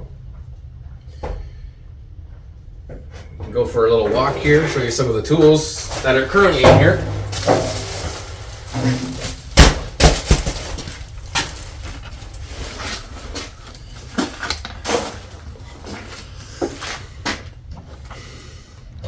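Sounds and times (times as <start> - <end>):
things knocking and clattering: 2.9 - 15.5
footsteps: 2.9 - 18.4.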